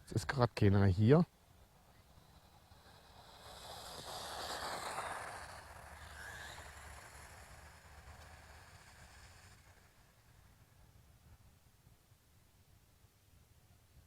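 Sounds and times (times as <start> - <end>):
rc car motor whine: 1.3 - 10.9.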